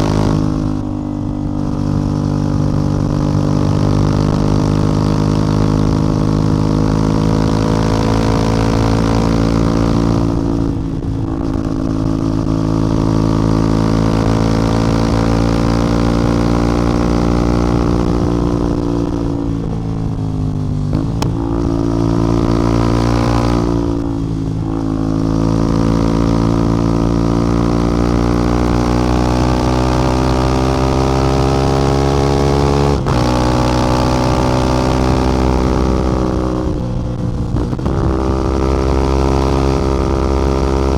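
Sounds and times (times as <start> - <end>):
motorcycle engine and exhaust: 0.0 - 40.9.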